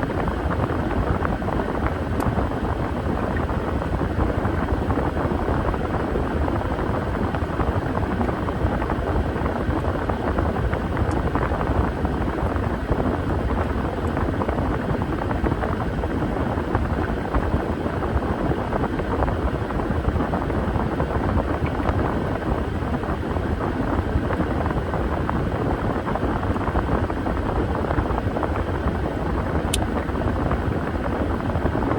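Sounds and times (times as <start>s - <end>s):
washing machine churning: 0.0s - 31.9s.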